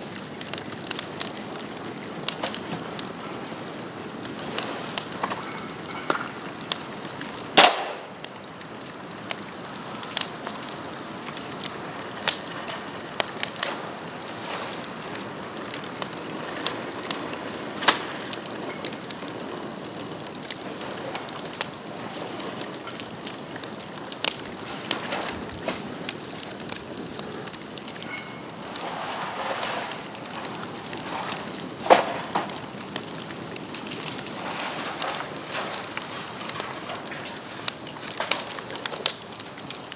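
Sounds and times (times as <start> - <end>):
bonfire crackling and popping: 0.0 - 39.9
steady hiss: 2.1 - 39.9
thin high whistle: 5.0 - 36.1.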